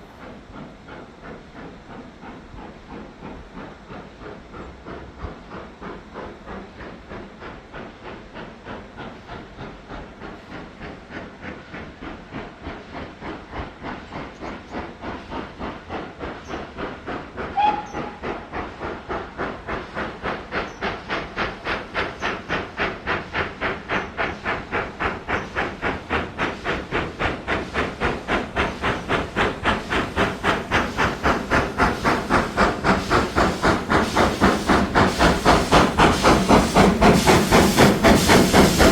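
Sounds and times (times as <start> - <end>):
steam locomotive exhaust beats: 0.0 - 38.9
train whistle: 17.5 - 18.3.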